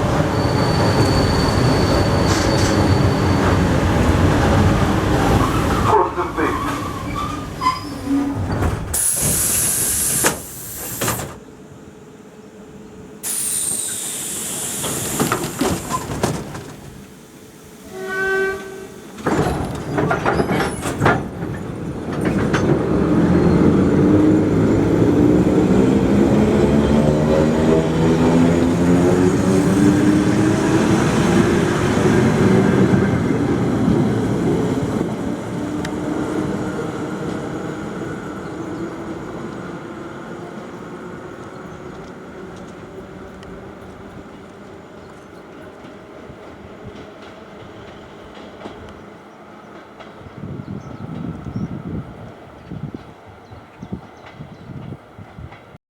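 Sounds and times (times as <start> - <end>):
train horn blast: 17.8 - 19.0
train drive hum rising: 20.7 - 55.7.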